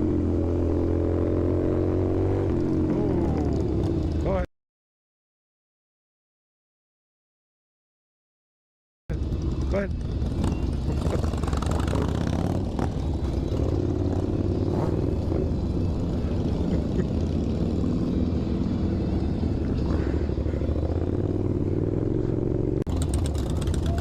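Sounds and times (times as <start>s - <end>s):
motorcycle engine revving: 0.0s - 4.4s, 9.1s - 24.0s.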